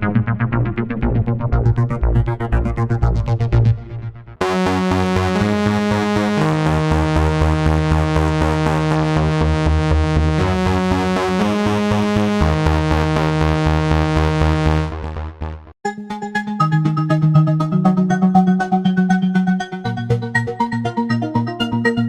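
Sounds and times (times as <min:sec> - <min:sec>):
rapidly pulsing synth bass: 0:00.0 - 0:15.8
synthesizer sustained chords: 0:00.2 - 0:22.0.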